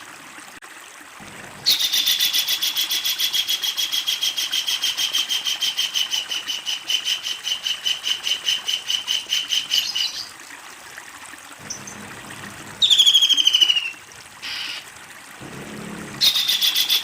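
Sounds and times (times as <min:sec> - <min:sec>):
kingfisher rattling call: 0:12.8 - 0:14.8, 0:16.2 - 0:17.0.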